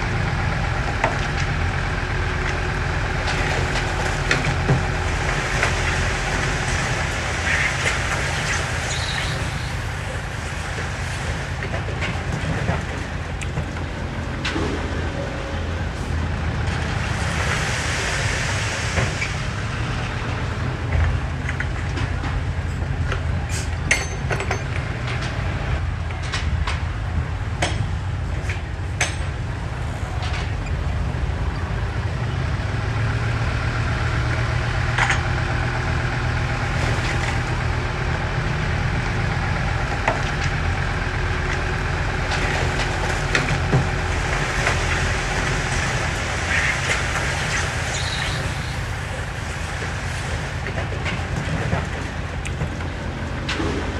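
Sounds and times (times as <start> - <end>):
diesel engine running under load: 0.0 - 53.9
metallic knocks and clanks: 23.8 - 25.4.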